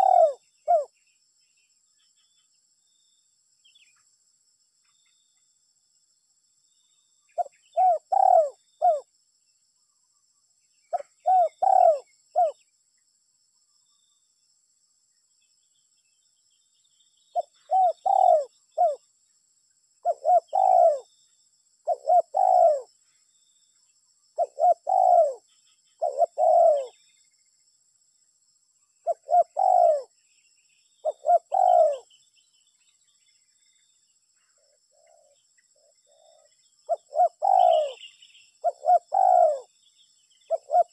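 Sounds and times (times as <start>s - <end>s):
dove cooing: 0.0s - 0.9s, 7.4s - 9.0s, 10.9s - 12.6s, 17.4s - 19.0s, 20.0s - 21.1s, 21.9s - 22.9s, 24.4s - 25.4s, 26.0s - 27.0s, 29.0s - 30.1s, 31.0s - 32.1s, 36.0s - 39.7s, 40.5s - 40.9s.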